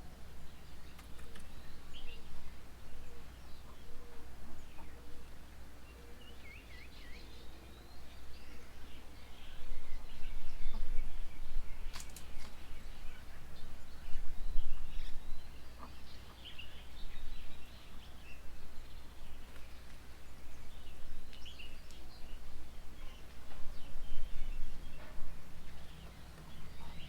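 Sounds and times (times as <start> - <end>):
birds chirping and calling: 23.0 - 27.0.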